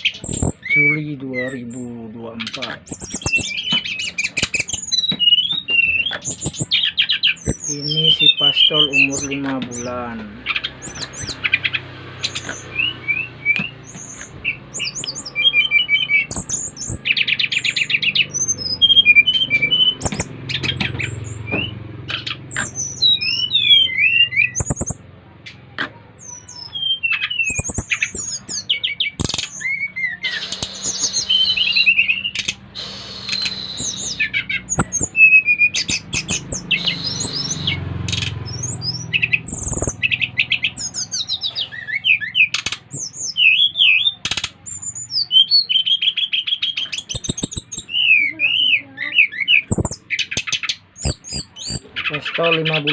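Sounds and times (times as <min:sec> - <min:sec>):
bird singing chirps and whistles: 0:00.0 - 0:25.0, 0:26.2 - 0:52.9
sharp clicks: 0:02.5 - 0:07.7, 0:09.1 - 0:12.8, 0:13.4 - 0:18.6, 0:19.2 - 0:41.6, 0:42.5 - 0:43.5, 0:44.2 - 0:44.8, 0:46.8 - 0:48.0, 0:49.6 - 0:51.9.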